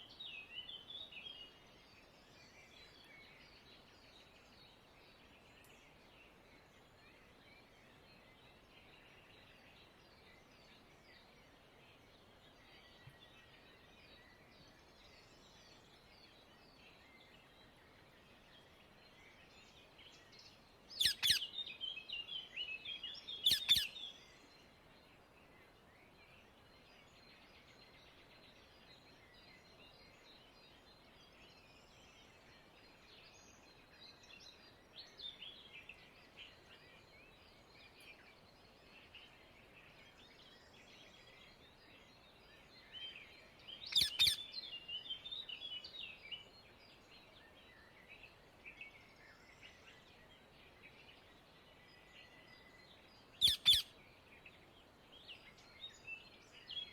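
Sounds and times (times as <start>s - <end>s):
faint background chirping: 0.0s - 56.9s
parakeets calling harshly: 53.4s - 53.8s.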